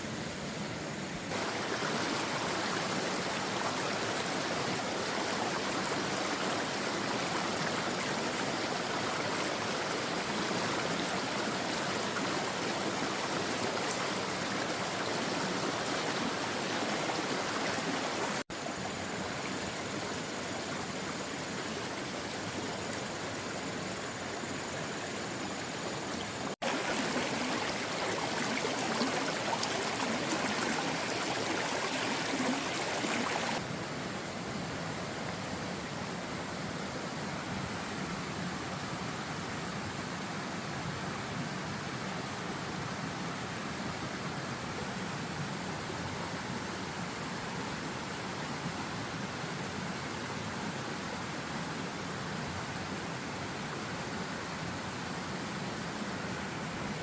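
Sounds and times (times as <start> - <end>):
water rushing: 1.2 - 33.9.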